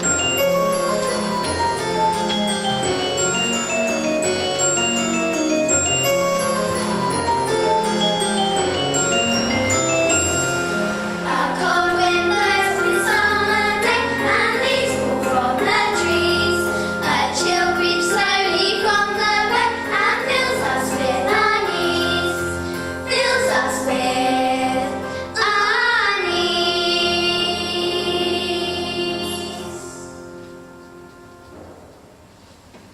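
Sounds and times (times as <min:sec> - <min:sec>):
instrumental accompaniment: 0:00.0 - 0:32.9
children's chorus singing: 0:11.0 - 0:30.1.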